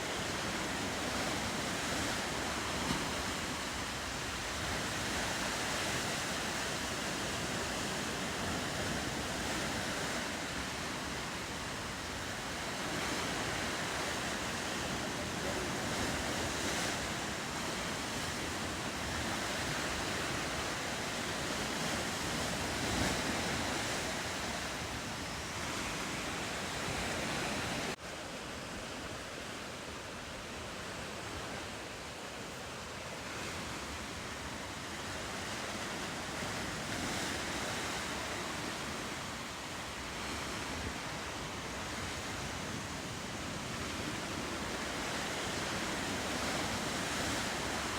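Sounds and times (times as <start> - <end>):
ocean waves and surf: 0.0 - 47.9
wind: 0.0 - 47.9.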